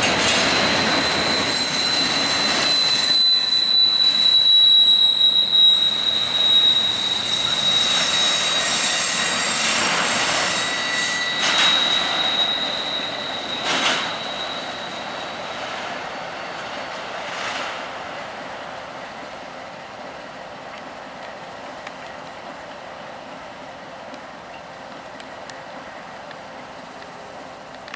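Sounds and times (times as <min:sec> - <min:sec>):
train cars rushing past: 0:00.0 - 0:20.4
train wheels squealing: 0:00.0 - 0:23.8.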